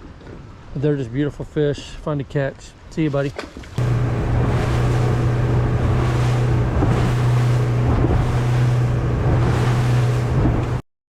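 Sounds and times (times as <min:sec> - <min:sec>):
engine humming: 0:03.8 - 0:10.8
wind buffeting microphone: 0:03.8 - 0:10.8.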